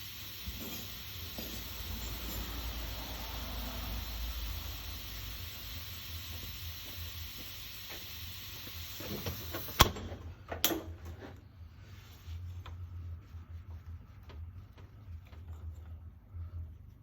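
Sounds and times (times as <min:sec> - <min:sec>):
steady hiss: 0:00.0 - 0:09.9.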